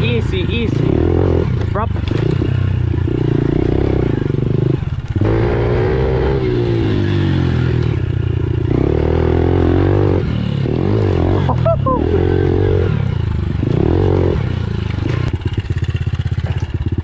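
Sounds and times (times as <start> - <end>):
pit bike engine revving: 0.0 - 17.0.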